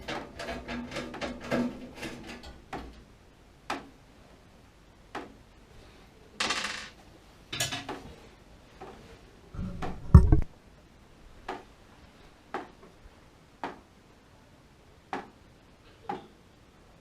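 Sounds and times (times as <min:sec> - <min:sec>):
heavy knock: 0:09.6 - 0:10.5.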